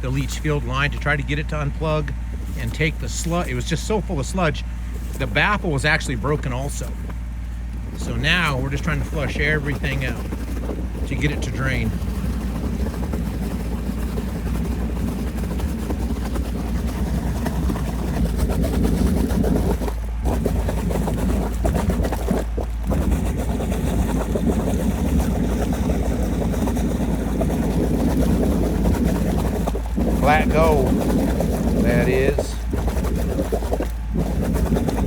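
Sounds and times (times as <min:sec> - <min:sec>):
engine drone: 0:00.0 - 0:35.0
high-pressure water rushing: 0:07.9 - 0:35.0.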